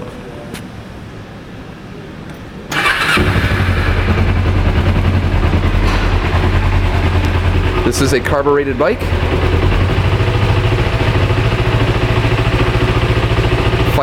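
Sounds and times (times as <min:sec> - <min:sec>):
starter motor cranking: 0:02.7 - 0:04.2
motorcycle engine idling: 0:02.8 - 0:14.0.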